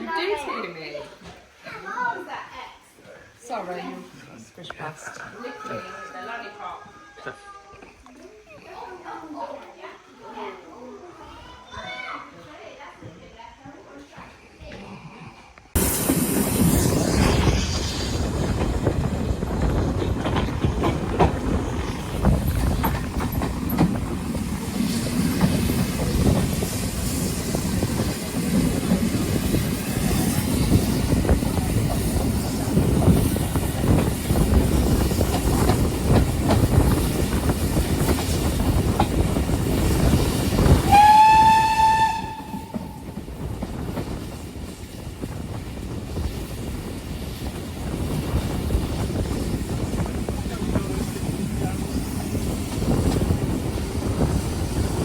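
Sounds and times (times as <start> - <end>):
train wheels rumbling and clattering: 15.7 - 55.0
train horn blast: 40.9 - 43.0.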